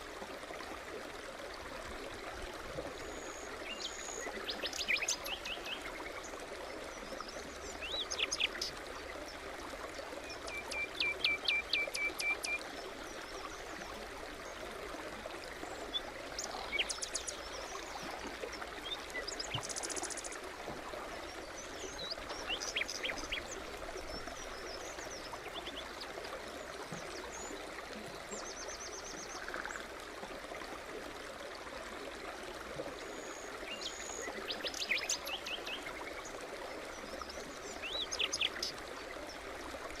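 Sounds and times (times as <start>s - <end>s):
brook babbling: 0.0s - 40.0s
songbirds calling: 21.4s - 26.0s, 33.7s - 39.4s.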